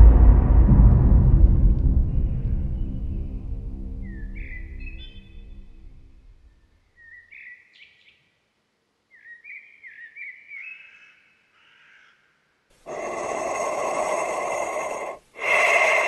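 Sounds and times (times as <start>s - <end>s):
birds chirping: 4.0s - 8.3s, 12.9s - 16.0s.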